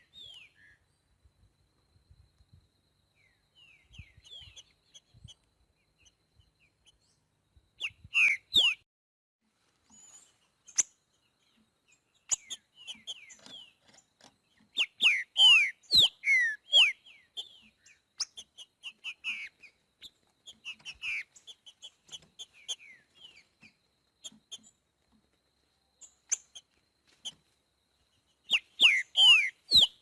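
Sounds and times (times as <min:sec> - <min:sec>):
bird singing whistles: 0:07.8 - 0:08.8, 0:14.8 - 0:19.5, 0:28.5 - 0:30.0.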